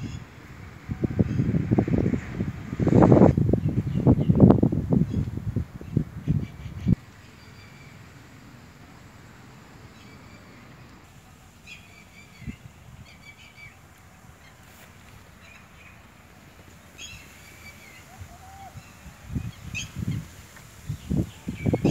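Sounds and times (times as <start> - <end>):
faint outdoor background noise: 0.0 - 21.9
small birds chirping: 9.8 - 21.9.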